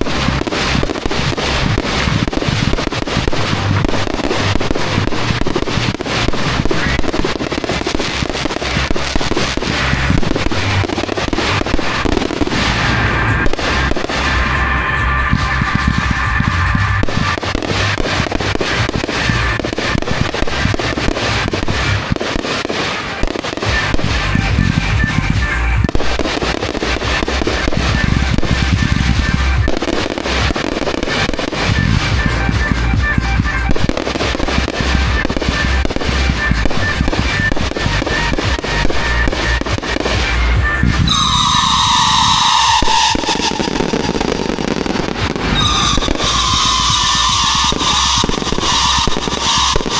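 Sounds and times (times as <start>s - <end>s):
fireworks cracks and bangs: 0.0s - 49.9s
music playing: 0.0s - 49.9s
loud falling tone: 10.0s - 18.5s, 40.9s - 49.9s.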